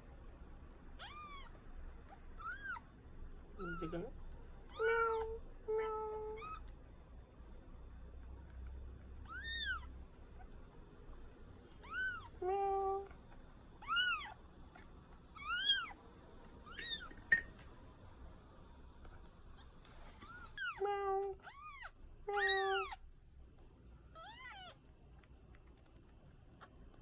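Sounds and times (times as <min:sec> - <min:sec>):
kitten mewing: 0:01.0 - 0:02.8, 0:03.6 - 0:04.1, 0:09.2 - 0:10.5, 0:11.8 - 0:14.8, 0:20.2 - 0:23.0, 0:24.1 - 0:24.8.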